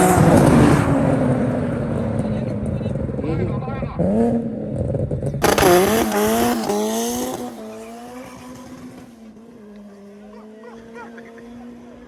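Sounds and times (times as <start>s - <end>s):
car engine accelerating through gears: 4.0s - 12.0s
drag race car launching: 5.3s - 9.2s.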